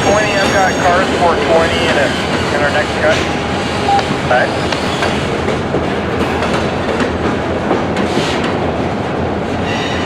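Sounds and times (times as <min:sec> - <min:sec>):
freight cars rumbling: 0:00.0 - 0:07.2.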